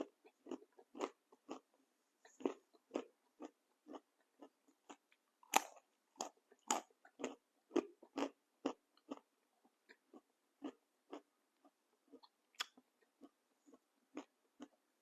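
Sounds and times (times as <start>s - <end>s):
crunchy snack chewing: 0.0s - 9.3s.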